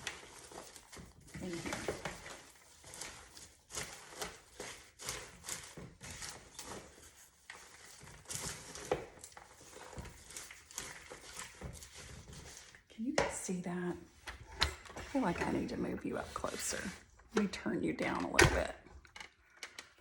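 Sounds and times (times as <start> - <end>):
spoon stirring popcorn in bowl: 0.0 - 13.9.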